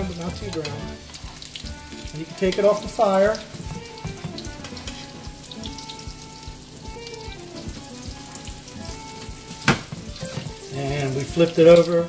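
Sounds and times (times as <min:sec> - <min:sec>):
tongs knocking: 0:00.0 - 0:11.9
chicken sizzling in oil: 0:00.0 - 0:12.0
quiet background music: 0:00.0 - 0:12.0.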